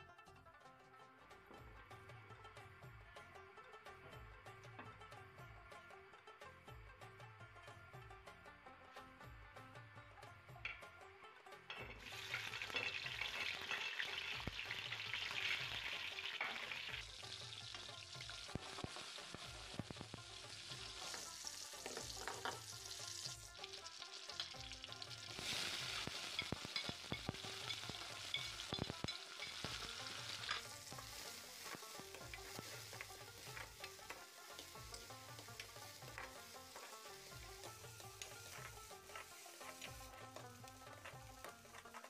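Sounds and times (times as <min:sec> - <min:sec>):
garlic sizzling in hot oil: 0:11.7 - 0:42.0
spatula stirring in pan: 0:11.7 - 0:42.0.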